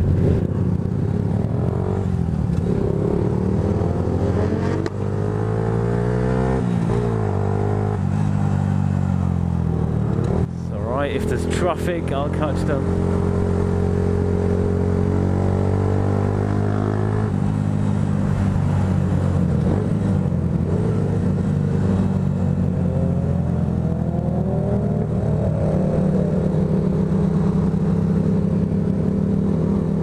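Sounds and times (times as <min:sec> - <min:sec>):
motorcycle engine running: 0:06.9 - 0:30.0.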